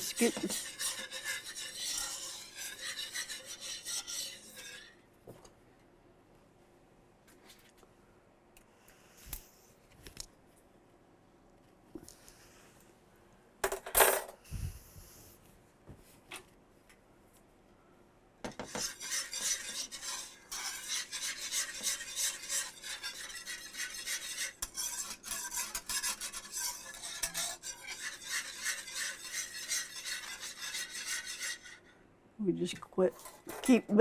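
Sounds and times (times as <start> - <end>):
whisk scraping a skillet: 0.0 - 5.0, 18.5 - 31.9.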